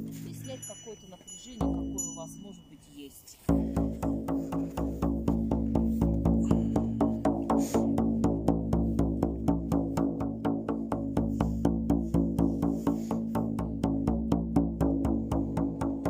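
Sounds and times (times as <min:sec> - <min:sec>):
frame drum beaten: 0:01.6 - 0:02.4, 0:03.5 - 0:16.0.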